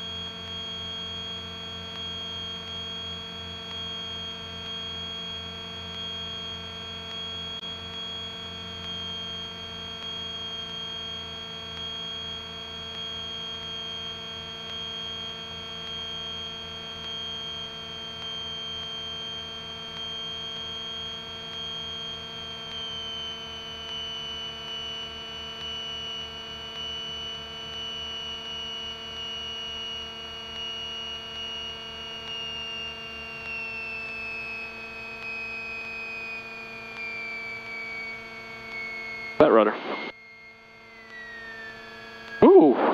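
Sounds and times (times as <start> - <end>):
high engine whine: 30.0 - 42.9.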